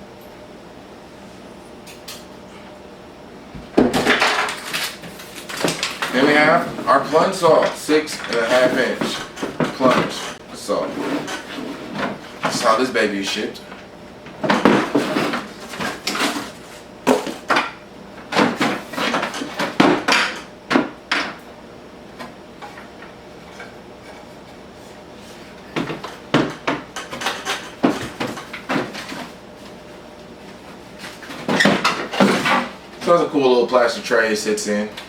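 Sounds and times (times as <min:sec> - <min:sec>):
hard plastic clattering and scraping: 0:03.9 - 0:12.8, 0:14.3 - 0:17.6.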